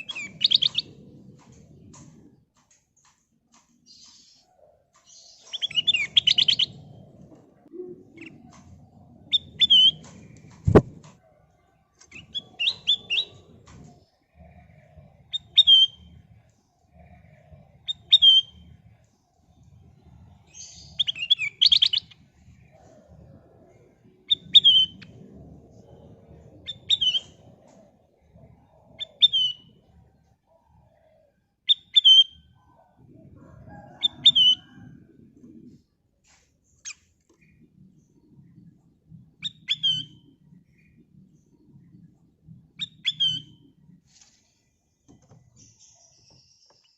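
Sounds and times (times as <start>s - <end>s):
faint low rumble: 6.0s - 21.1s, 22.0s - 31.6s, 32.4s - 45.0s.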